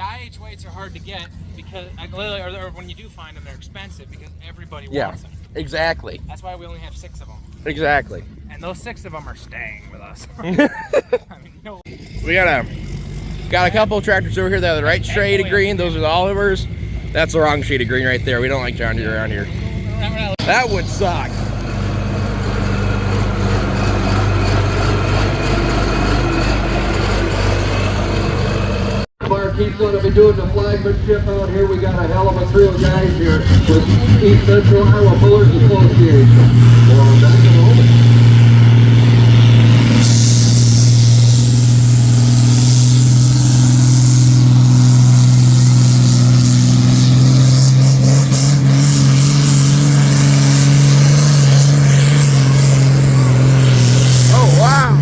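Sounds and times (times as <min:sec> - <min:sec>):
tractor engine running hard: 0:11.8 - 0:29.1, 0:31.3 - 0:55.0
tractor engine idling: 0:13.5 - 0:29.1.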